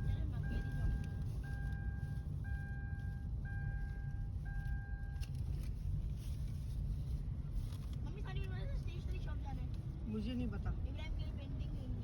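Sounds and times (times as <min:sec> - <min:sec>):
vehicle rumble: 0:00.0 - 0:12.0
electronic warning beep: 0:00.4 - 0:05.2.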